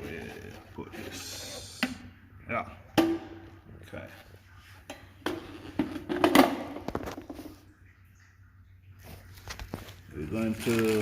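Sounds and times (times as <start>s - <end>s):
plastic cistern parts clattering: 4.9s - 7.6s.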